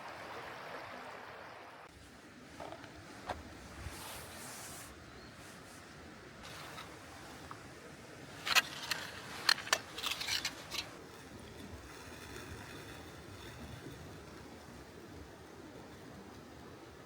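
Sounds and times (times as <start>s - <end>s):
faint steady hiss: 0.0s - 17.0s
rustling: 2.0s - 7.7s, 8.3s - 14.4s.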